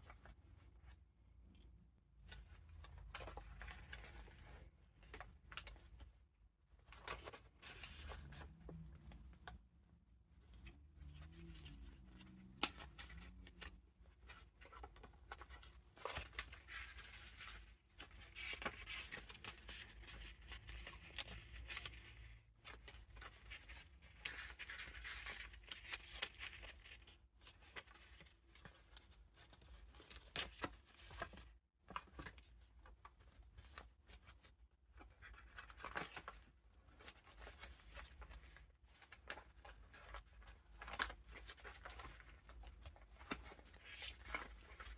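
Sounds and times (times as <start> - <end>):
paper pages rustling: 2.3 - 6.1, 35.0 - 44.9.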